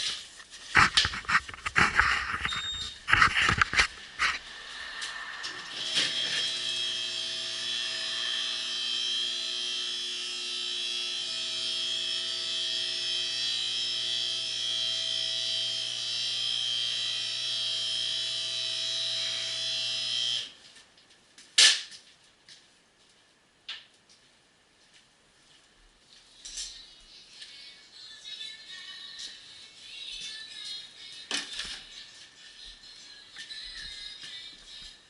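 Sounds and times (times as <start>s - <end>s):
small electric motor whirring: 4.2s - 20.5s.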